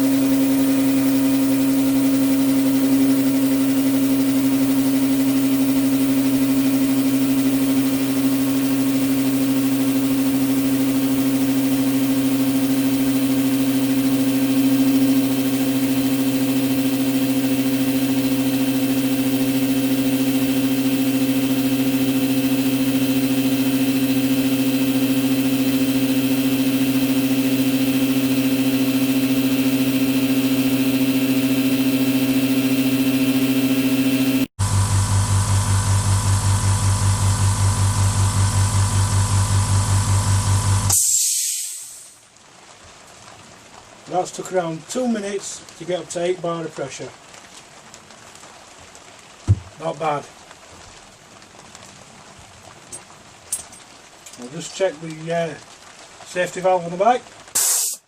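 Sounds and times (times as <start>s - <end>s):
air compressor humming: 0.0s - 41.4s.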